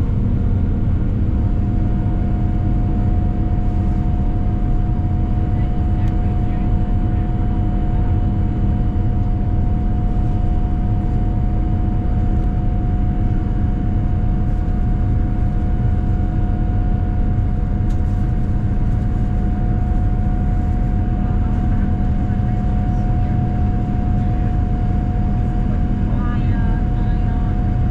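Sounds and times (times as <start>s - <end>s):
airplane cabin engine rumble: 0.0s - 27.9s
steady whine: 0.0s - 27.9s.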